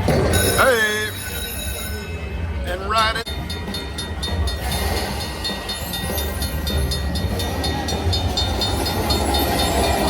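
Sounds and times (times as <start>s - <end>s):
train rumbling with fast clicking: 3.3s - 10.0s.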